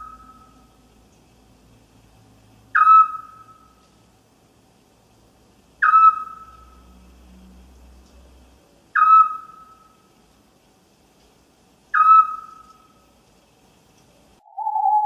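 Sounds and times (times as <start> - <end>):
owl whistled call: 2.7 - 3.6, 5.8 - 6.5, 9.0 - 9.9, 11.9 - 12.6, 14.4 - 15.0.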